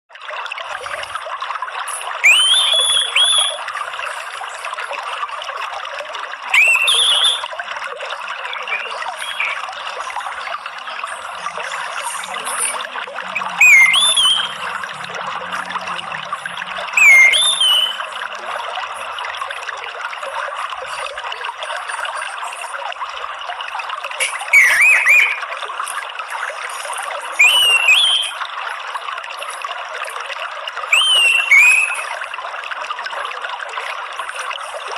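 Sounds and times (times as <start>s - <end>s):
water trickling: 0.1s - 34.9s
rising bird whistle: 2.2s - 3.7s, 6.5s - 7.5s, 8.6s - 9.6s, 12.6s - 14.9s, 15.5s - 18.1s, 24.5s - 25.4s, 27.4s - 28.4s, 30.9s - 32.1s.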